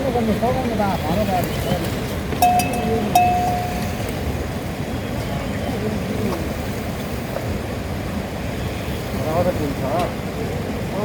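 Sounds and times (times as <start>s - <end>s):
clear ringing tones: 2.4s - 4.3s.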